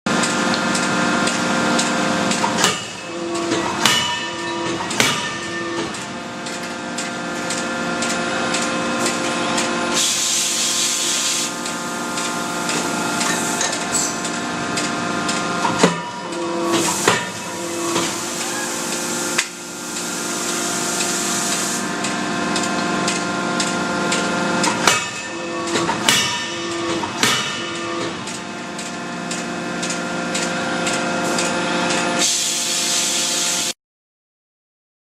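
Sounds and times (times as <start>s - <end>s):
machine hum: 0.1s - 32.2s
forging hammer blows: 2.6s - 6.2s.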